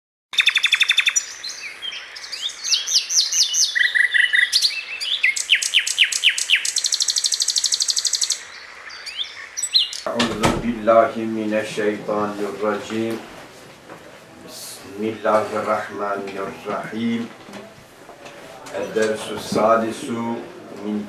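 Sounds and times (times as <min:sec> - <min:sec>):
songbird trilling and whistling: 0:00.4 - 0:10.1.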